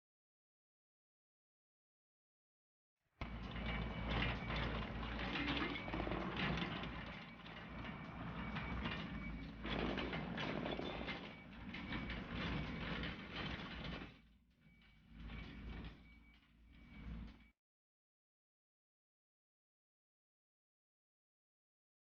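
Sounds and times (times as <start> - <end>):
excavator engine running: 3.2 - 17.4.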